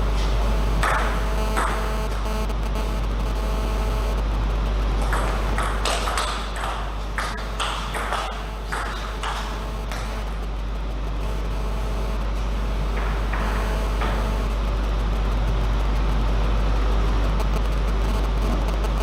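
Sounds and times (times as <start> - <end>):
steady low hum: 0.0 - 19.0
table tennis ball clicking: 5.0 - 10.3.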